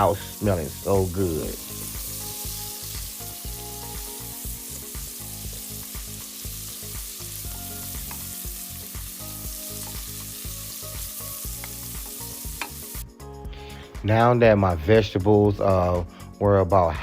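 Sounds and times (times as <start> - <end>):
vegetables sizzling in oil: 0.0 - 13.1.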